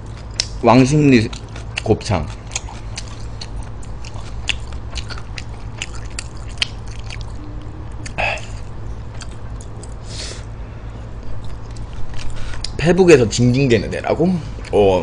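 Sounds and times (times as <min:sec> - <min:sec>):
wet chewing clicks and smacks: 0:00.0 - 0:10.0, 0:11.2 - 0:12.8
steady low hum: 0:00.0 - 0:15.0.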